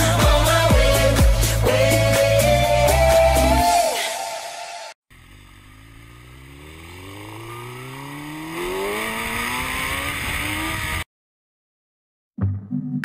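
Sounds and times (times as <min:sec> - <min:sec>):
car engine accelerating: 0:05.1 - 0:11.1.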